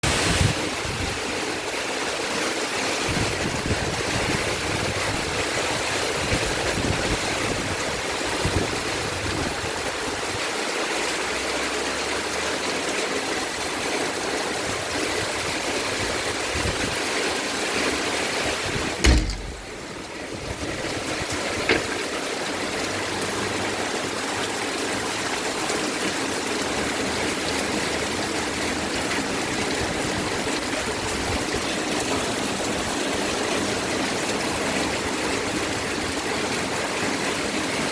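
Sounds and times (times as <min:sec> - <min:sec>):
heavy rain hissing: 0:00.0 - 0:01.7
sharp knock: 0:19.0 - 0:19.8.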